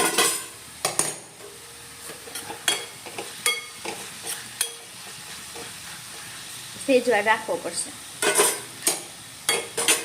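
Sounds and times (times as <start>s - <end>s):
faint sizzle: 0.0s - 10.0s
metal spoon clinking on a pan: 2.3s - 4.0s, 4.6s - 4.9s, 8.2s - 10.0s.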